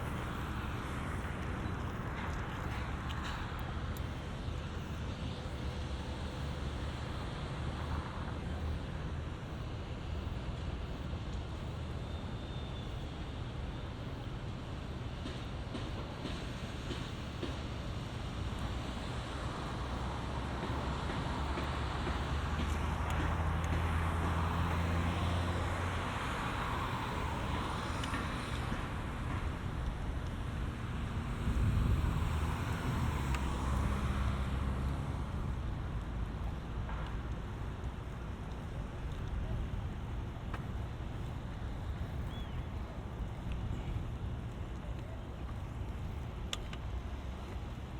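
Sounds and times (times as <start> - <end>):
road traffic hum: 0.0 - 47.9
wind rumbling on microphone: 21.9 - 47.9.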